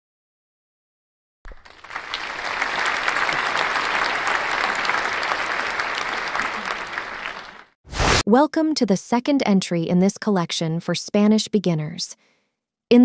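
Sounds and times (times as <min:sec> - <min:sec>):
crowd applauding: 0:01.5 - 0:07.8.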